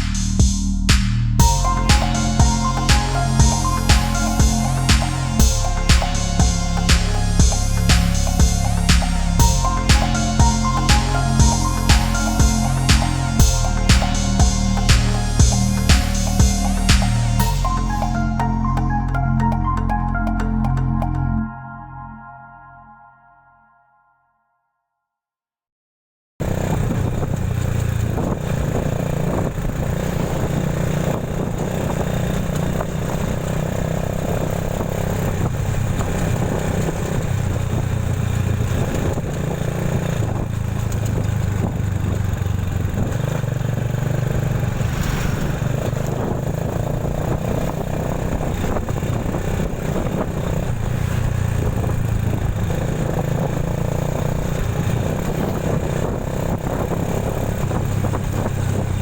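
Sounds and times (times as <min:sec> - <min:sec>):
motorcycle engine drone: 0:00.0 - 0:21.4, 0:26.4 - 0:59.0
road and wind noise: 0:26.4 - 0:59.0.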